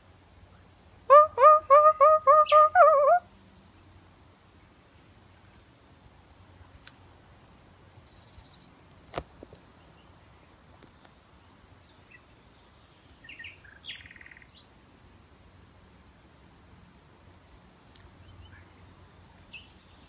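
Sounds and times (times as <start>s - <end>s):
songbird calls: 0.5s - 3.9s, 9.8s - 14.7s, 18.2s - 20.0s.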